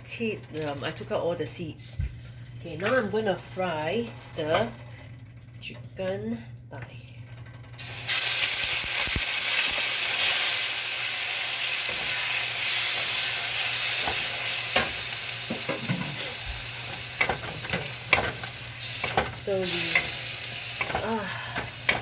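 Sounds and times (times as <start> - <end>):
chicken sizzling in oil: 7.8 - 22.0.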